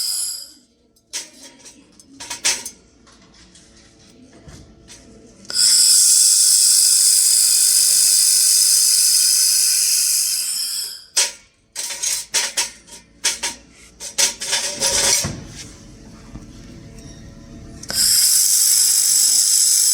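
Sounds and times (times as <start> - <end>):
laser welder hissing: 0.0 - 0.6, 5.5 - 11.1, 17.9 - 19.9.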